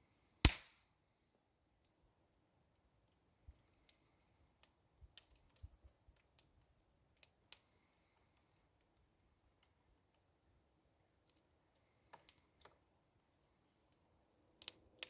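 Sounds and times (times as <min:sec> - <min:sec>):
fire crackling and popping: 0:00.5 - 0:00.7, 0:03.5 - 0:15.0.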